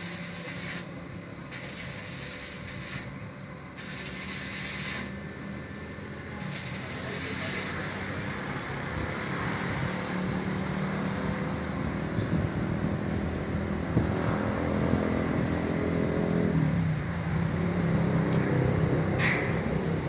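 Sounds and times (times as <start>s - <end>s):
welding arc crackling: 0.0s - 5.2s, 6.4s - 7.8s.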